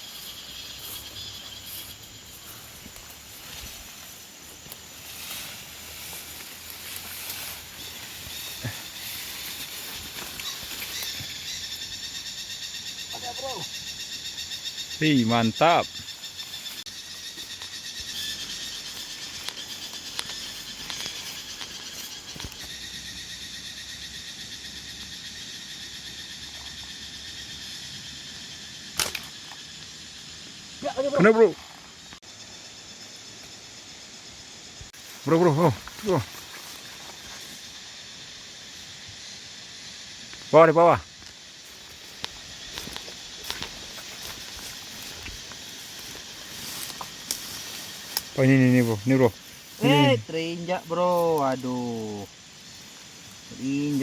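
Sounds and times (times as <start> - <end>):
rustling in undergrowth: 0.0 - 15.0, 16.0 - 22.9, 34.9 - 39.0, 41.2 - 54.0
high pulsing insect buzz: 0.0 - 54.0.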